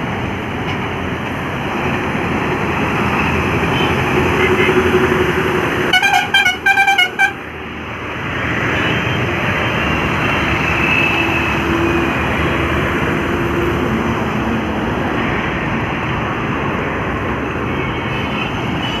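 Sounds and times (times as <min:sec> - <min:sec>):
heavy highway traffic: 0:00.0 - 0:19.0
vehicle horn tooting: 0:05.9 - 0:07.4.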